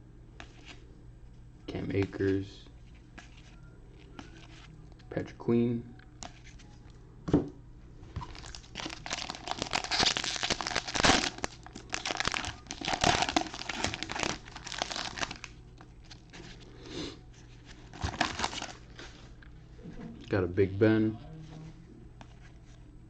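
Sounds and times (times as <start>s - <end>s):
card wrappers tearing and crinkling: 2.9s - 4.7s, 8.2s - 16.6s, 17.4s - 19.2s.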